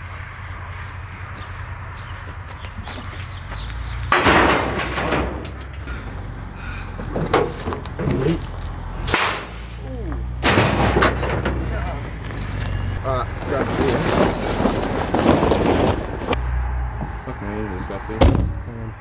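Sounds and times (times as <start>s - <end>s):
metal crashing onto scrap pile: 4.1s - 5.8s, 10.4s - 11.7s
metal clanks: 4.1s - 5.9s, 9.0s - 11.9s.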